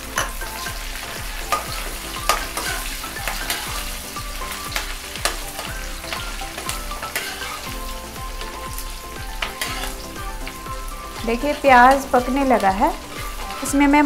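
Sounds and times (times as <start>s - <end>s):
onions sizzling in oil: 0.0s - 14.0s
steel spatula scraping pan: 1.4s - 7.8s, 9.4s - 10.2s, 11.3s - 14.0s.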